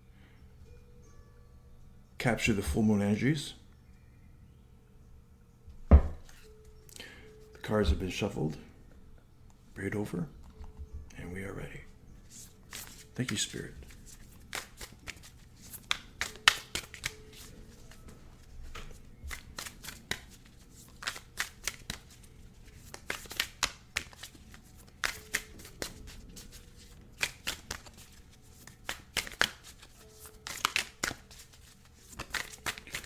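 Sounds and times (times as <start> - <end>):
cards being shuffled: 5.9 - 6.5, 12.2 - 33.0.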